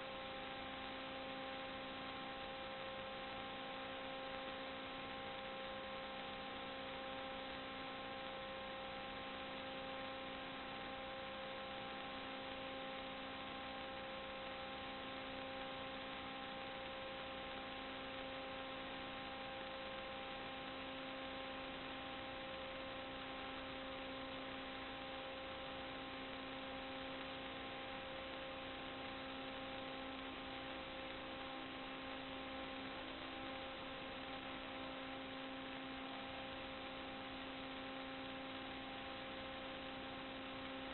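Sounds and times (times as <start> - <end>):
electrical hum with hiss: 0.0 - 40.9.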